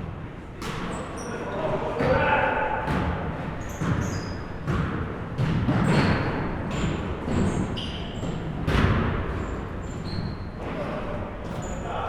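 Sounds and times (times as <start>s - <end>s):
sneaker squeaks: 0.6s - 12.0s
basketballs bouncing on wooden floor: 2.0s - 10.9s.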